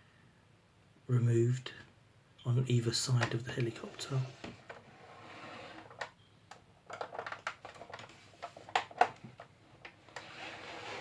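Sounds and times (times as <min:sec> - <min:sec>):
hard plastic parts clicking: 0:05.8 - 0:10.3.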